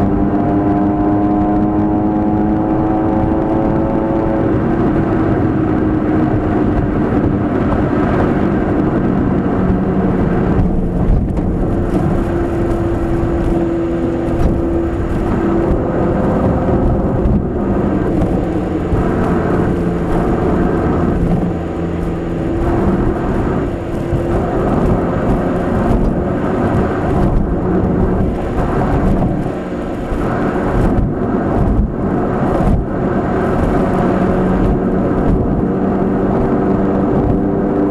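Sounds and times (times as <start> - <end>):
car engine running: 0.0 - 37.9
road noise: 0.0 - 37.9.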